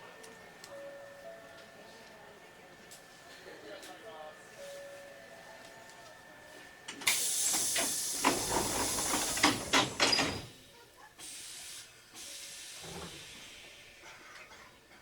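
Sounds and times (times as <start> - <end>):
compressed air hissing: 7.1 - 10.4, 11.2 - 13.6.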